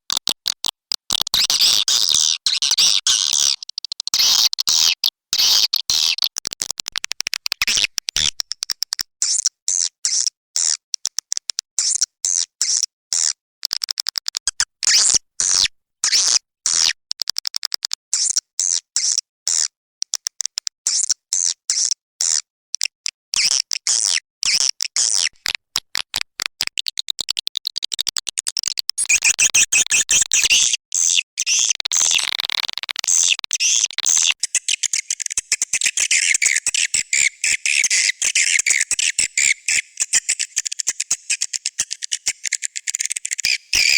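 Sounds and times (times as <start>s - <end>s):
high-pitched bird chirping twitters: 29.0s - 32.4s, 33.1s - 43.9s.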